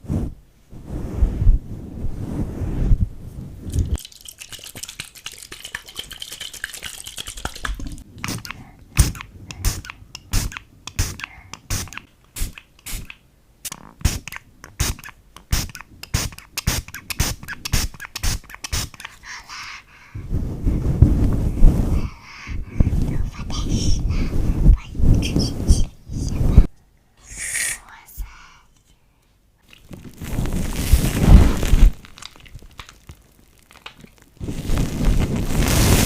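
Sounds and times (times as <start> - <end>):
foam crunching crackles: 29.8 - 36.0.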